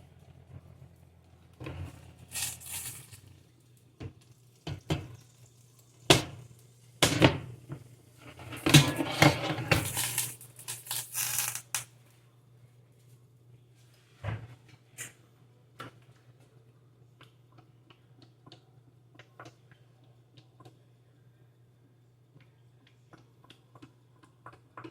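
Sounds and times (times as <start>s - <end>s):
pots dishes and utensils clattering: 8.2s - 11.5s.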